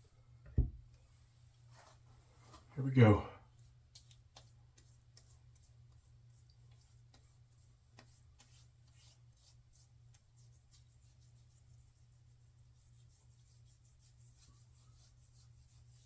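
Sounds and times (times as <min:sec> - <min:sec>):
hands rubbing balm on face: 0:03.5 - 0:16.0.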